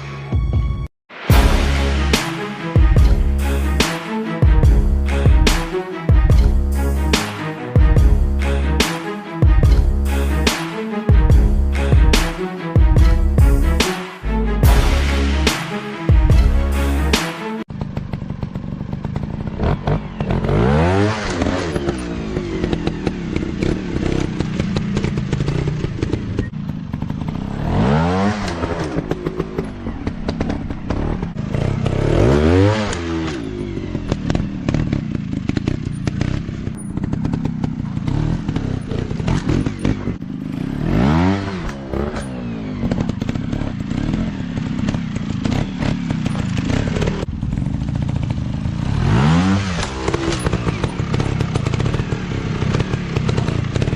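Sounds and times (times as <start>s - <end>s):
clatter: 17.7s - 53.9s
dirt bike engines running hard: 17.7s - 53.9s.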